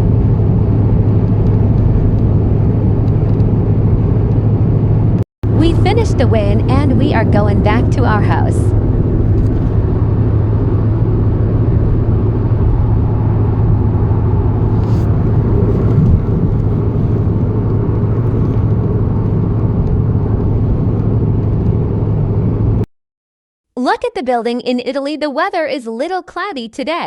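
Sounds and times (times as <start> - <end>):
car engine and road noise: 0.0 - 22.8.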